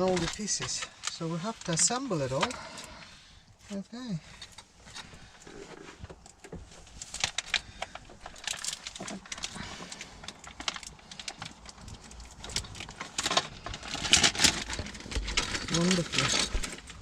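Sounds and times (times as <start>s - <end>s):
small parts clicking and rattling: 6.2s - 17.0s.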